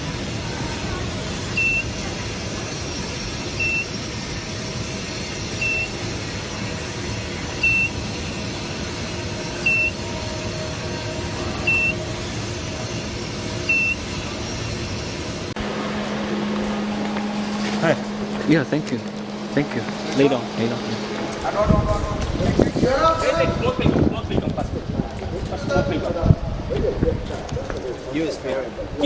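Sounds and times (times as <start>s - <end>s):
steady machine hum: 0.0s - 29.0s
short high electronic beep: 11.6s - 12.1s, 15.6s - 23.2s.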